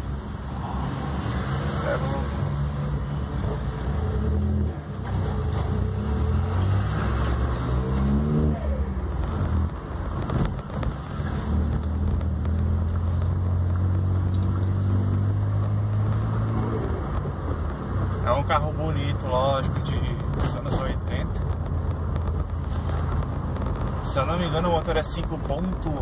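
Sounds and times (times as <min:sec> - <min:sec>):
car engine revving: 0:00.5 - 0:17.4.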